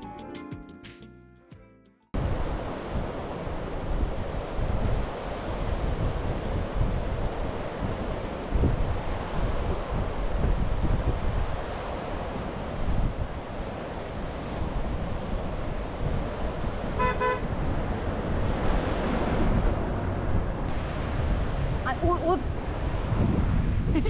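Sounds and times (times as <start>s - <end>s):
wind buffeting microphone: 2.2s - 24.0s
vehicle horn beep: 17.0s - 17.6s.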